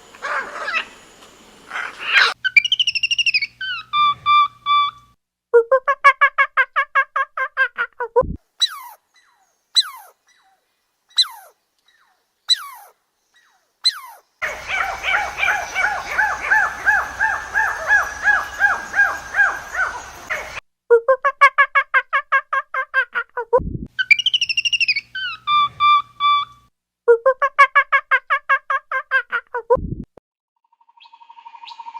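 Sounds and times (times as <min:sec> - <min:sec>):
rapid pulsed calls: 0:00.0 - 0:05.0, 0:14.4 - 0:20.6
warbling call stepping down: 0:14.4 - 0:20.6.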